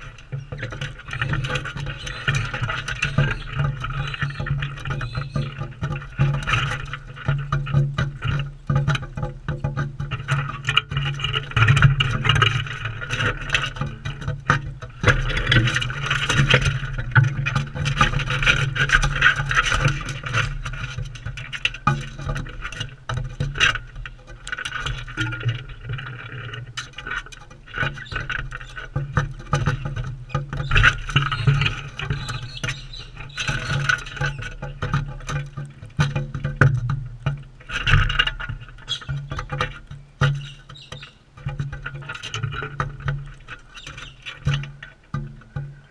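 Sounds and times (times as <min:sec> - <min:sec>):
beaks clicking and scraping on seed: 0:27.8 - 0:35.6.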